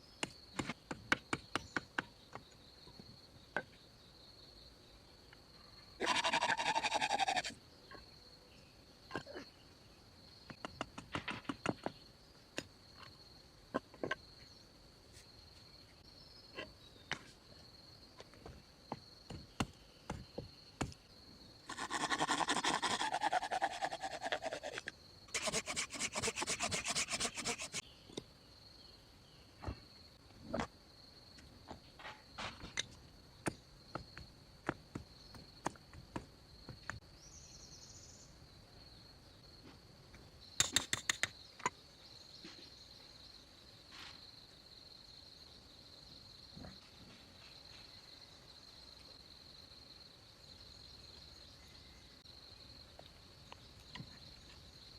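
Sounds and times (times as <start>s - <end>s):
crickets chirring: 0.0s - 54.9s
wood being rasped with hand tool: 25.3s - 27.8s.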